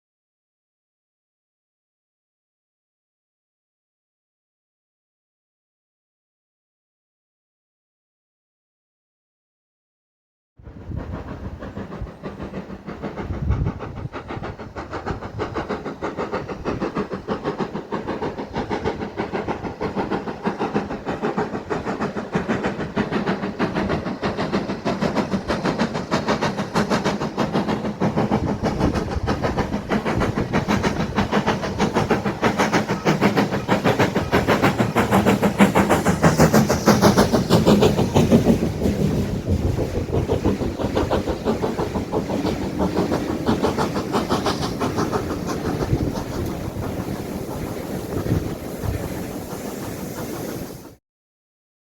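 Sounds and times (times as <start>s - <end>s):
steam locomotive clatter: 10.6s - 51.0s.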